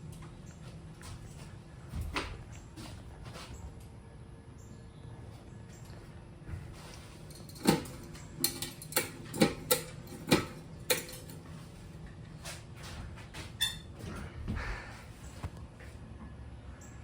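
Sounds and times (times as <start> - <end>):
sharp clicks and knocks: 7.3 - 11.4.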